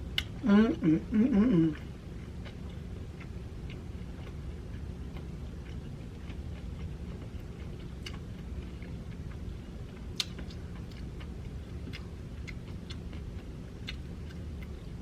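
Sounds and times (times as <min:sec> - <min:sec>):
low hum: 0:00.0 - 0:15.0
crunchy chewing: 0:01.8 - 0:15.0.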